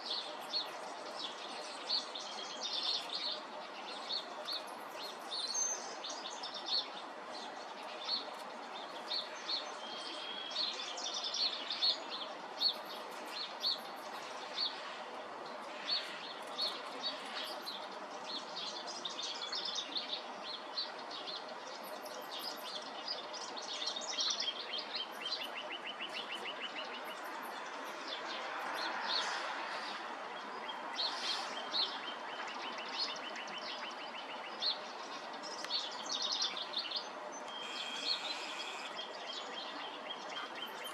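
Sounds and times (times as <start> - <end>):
background hiss: 0.0 - 40.9
robin singing: 0.0 - 40.9
bird fast trill: 37.5 - 39.1.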